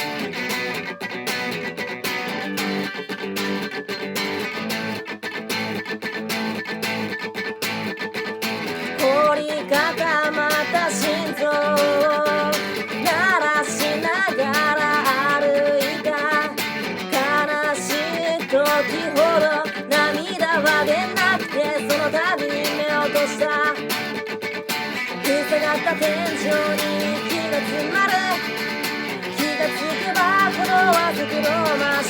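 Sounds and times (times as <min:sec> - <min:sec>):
strummed acoustic guitar: 0:00.0 - 0:32.0
person singing with vibrato: 0:08.7 - 0:32.0.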